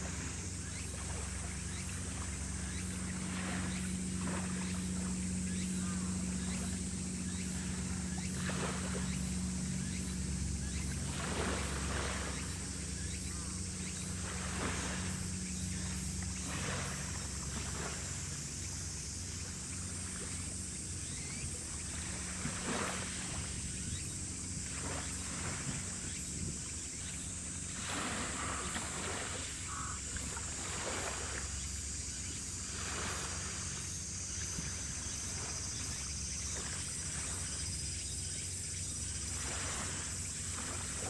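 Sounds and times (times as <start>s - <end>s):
constant high hiss: 0.0s - 41.0s
ship engines droning: 0.0s - 41.0s.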